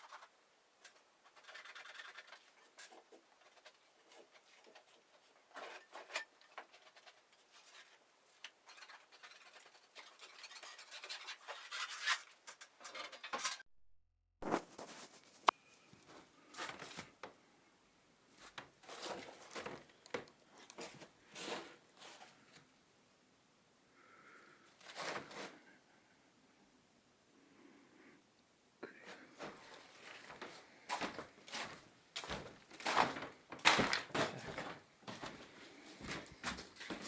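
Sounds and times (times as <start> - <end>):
scraping and rustling: 0.0 - 13.6, 14.4 - 17.3, 18.4 - 22.7, 24.8 - 25.7.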